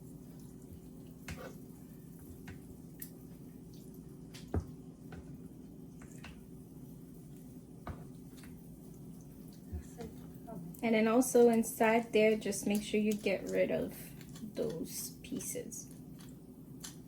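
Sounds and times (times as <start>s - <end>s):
steady low hum: 0.0s - 17.0s
wet clicks and squelches: 12.3s - 14.9s, 15.8s - 17.0s.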